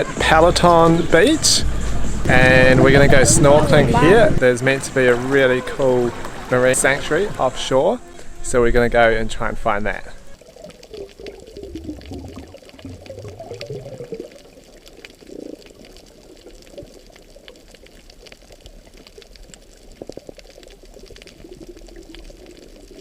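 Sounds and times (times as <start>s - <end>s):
underwater water gurgling: 0.0s - 7.9s, 10.4s - 23.0s.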